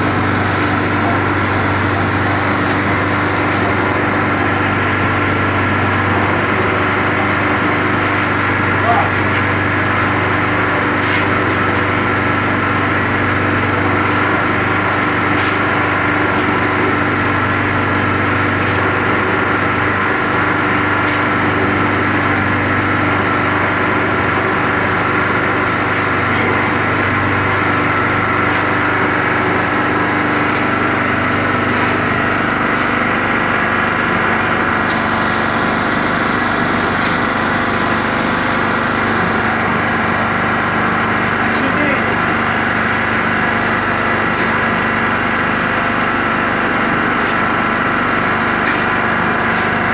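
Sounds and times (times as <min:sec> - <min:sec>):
petrol generator engine running: 0:00.0 - 0:49.9.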